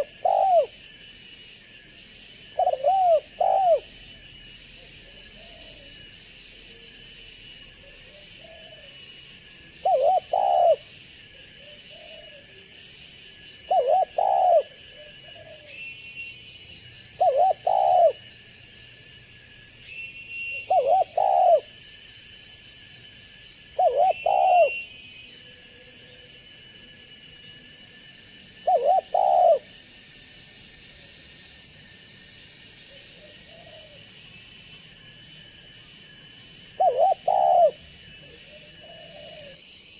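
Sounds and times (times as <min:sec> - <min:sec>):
dove cooing: 0:00.0 - 0:00.8, 0:02.6 - 0:03.9, 0:09.8 - 0:10.9, 0:11.6 - 0:12.4, 0:13.7 - 0:15.6, 0:17.2 - 0:18.2, 0:20.7 - 0:21.7, 0:23.8 - 0:24.8, 0:28.6 - 0:29.7, 0:36.8 - 0:39.6
steady high hiss: 0:00.0 - 0:07.8, 0:08.5 - 0:39.9.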